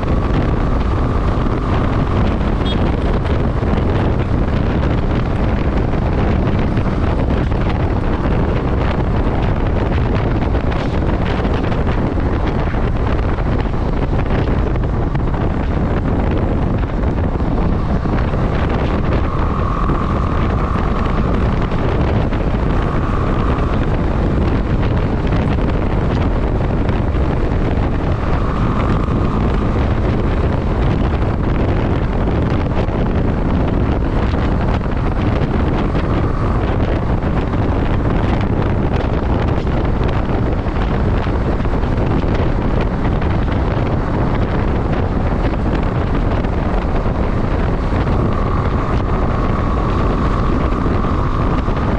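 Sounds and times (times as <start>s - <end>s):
motorcycle running: 0.0s - 51.9s
wind rushing on microphone: 0.0s - 51.9s.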